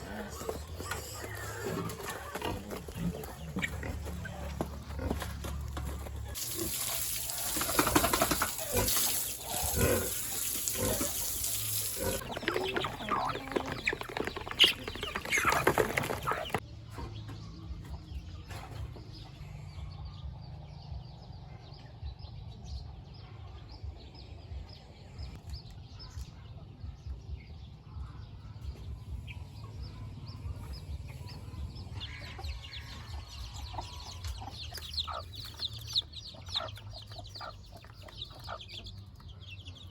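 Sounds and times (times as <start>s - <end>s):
wing flapping and scuffling: 0.0s - 9.4s, 10.0s - 16.6s
chickens clucking: 0.0s - 19.9s, 28.6s - 39.9s.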